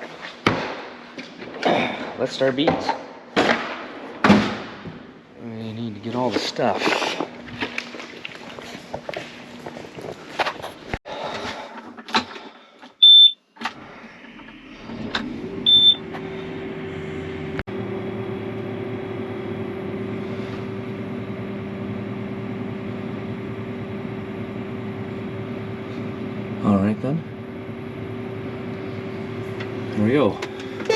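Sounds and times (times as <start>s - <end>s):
short high warning beeps: 13.0s - 13.4s, 15.7s - 16.0s
diesel engine running: 13.7s - 30.9s.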